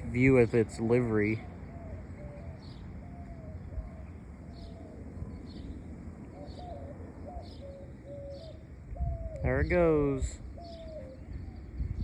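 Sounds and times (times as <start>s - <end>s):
bird calling in pitched notes: 6.3s - 12.0s.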